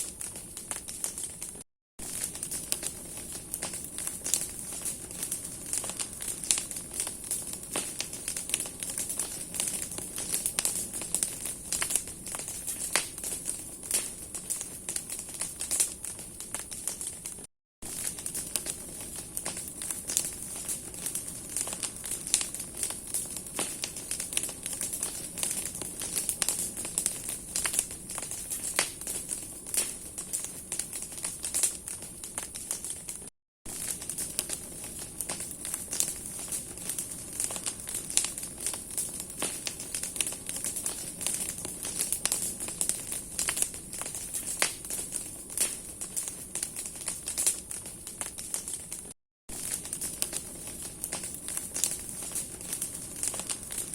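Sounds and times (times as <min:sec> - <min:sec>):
hiss of flame: 0:00.0 - 0:33.0
burning wood crackling: 0:00.0 - 0:53.9.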